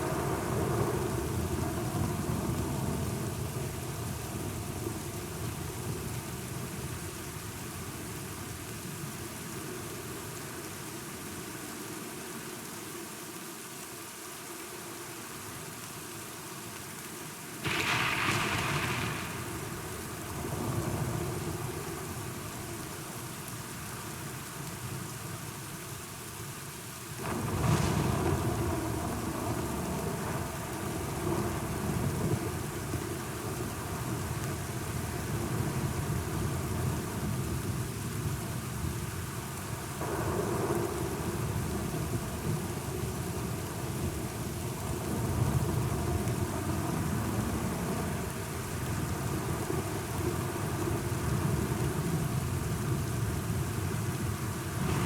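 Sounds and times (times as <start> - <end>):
steady rain: 0.0 - 55.0
thunder: 17.6 - 22.1, 27.2 - 32.8, 39.9 - 44.2, 54.8 - 55.0.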